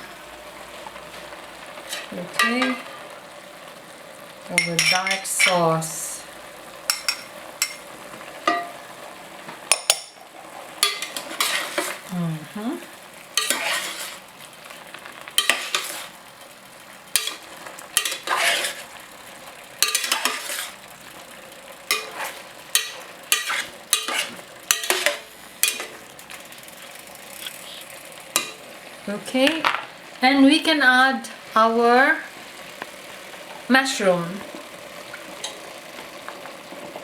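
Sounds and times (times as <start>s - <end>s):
chicken sizzling in a pan: 0.0s - 37.0s
utensil scraping and knocking pan: 10.8s - 12.0s, 13.4s - 14.2s, 15.4s - 16.2s, 17.2s - 17.4s, 18.0s - 19.0s, 19.8s - 20.8s, 21.9s - 26.0s.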